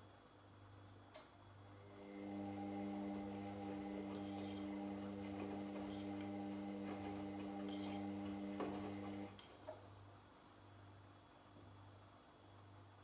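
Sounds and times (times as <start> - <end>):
washing machine motor hum: 1.8 - 9.4.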